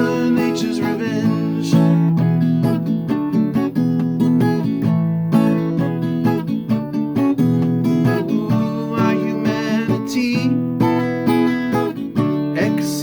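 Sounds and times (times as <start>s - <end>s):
person singing: 0.0s - 2.6s, 8.0s - 13.0s
acoustic guitar strumming: 0.0s - 13.0s.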